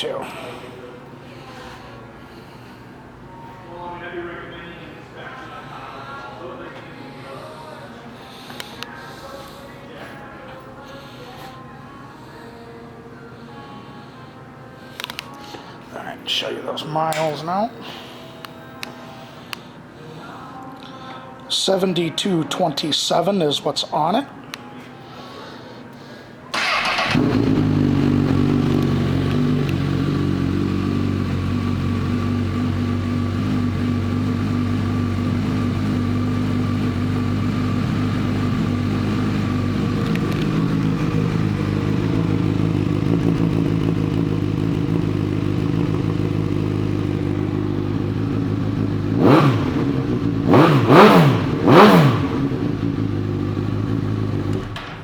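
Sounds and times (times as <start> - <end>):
motorcycle engine idling and revving: 26.6 - 54.8.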